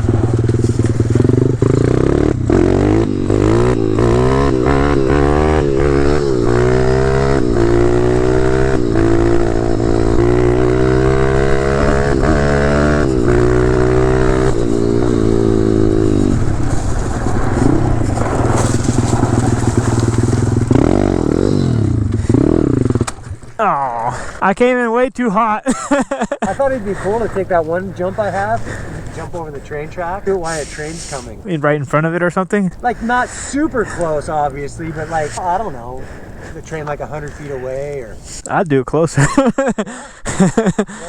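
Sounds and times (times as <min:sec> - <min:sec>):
pit bike engine revving: 0:00.0 - 0:24.4, 0:25.7 - 0:31.5, 0:32.7 - 0:38.5
sharp knocks and clatter: 0:16.6 - 0:21.0.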